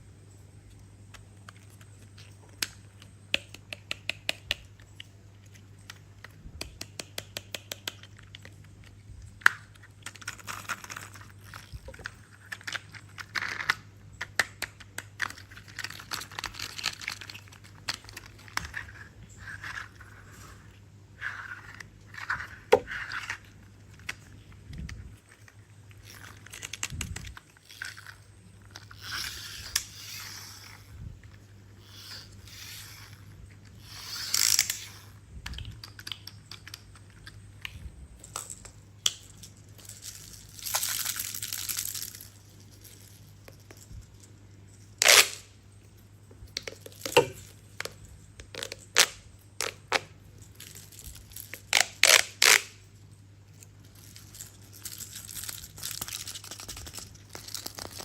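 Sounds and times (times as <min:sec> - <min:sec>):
faint low hum: 0:00.0 - 0:58.0
toy handling scrapes: 0:15.2 - 0:35.2, 0:46.7 - 0:48.0.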